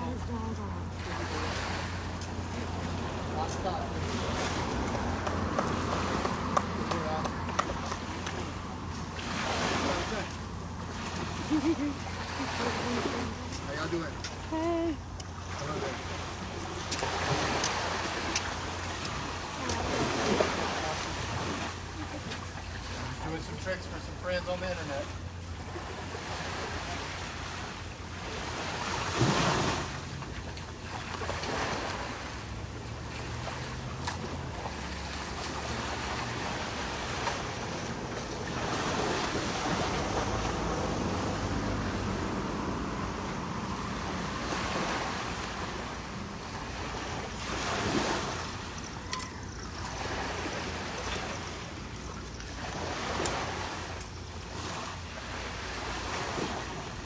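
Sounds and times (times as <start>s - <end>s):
ocean surf washing in: 0.0s - 14.1s, 25.6s - 30.3s, 31.2s - 49.0s.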